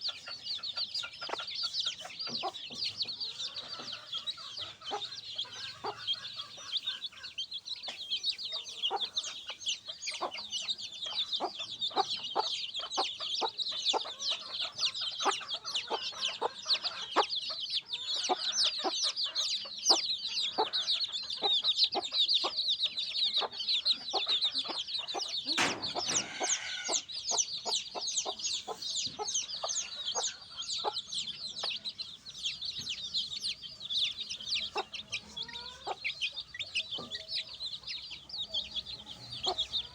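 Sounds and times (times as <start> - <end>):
baby chicks peeping: 0.0 - 39.9
hen clucking: 0.0 - 39.9.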